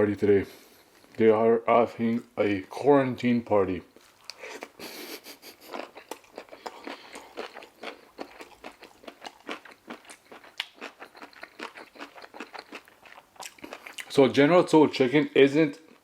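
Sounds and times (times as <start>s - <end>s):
chewing crispy food: 3.9s - 14.4s
wet mouth clicks: 4.2s - 14.1s.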